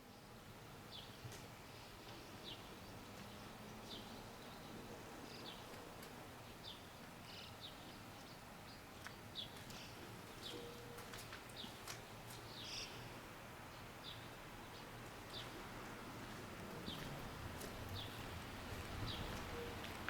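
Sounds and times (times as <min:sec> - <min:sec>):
bird chirping: 0:06.5 - 0:11.8, 0:12.5 - 0:15.6.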